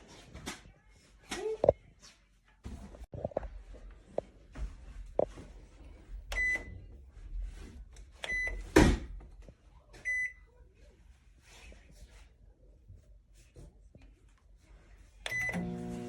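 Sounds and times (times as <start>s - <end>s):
microwave beeping: 6.3s - 6.7s, 8.2s - 8.6s, 15.3s - 16.0s.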